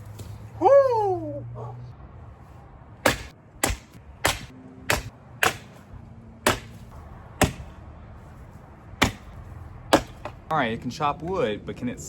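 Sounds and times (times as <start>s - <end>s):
axe chopping wood: 3.0s - 7.8s, 9.0s - 10.5s.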